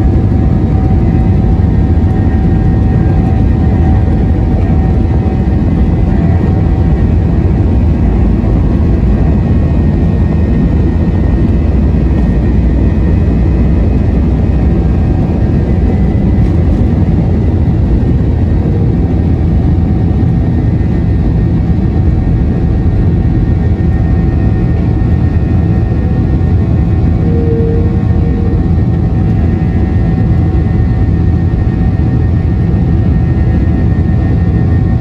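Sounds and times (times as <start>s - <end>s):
jet engines rumbling in cabin: 0.0s - 35.0s
engine whining tones: 25.0s - 30.4s.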